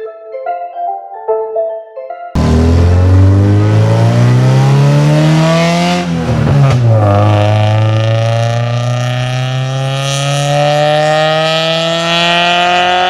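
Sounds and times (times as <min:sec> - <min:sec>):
gear change: 0:02.4 - 0:09.8
car engine accelerating: 0:02.4 - 0:13.0.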